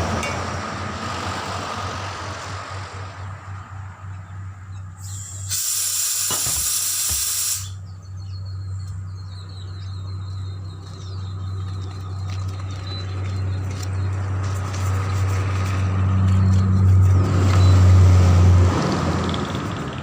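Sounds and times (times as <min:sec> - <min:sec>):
compressed air hissing: 0:05.0 - 0:07.8.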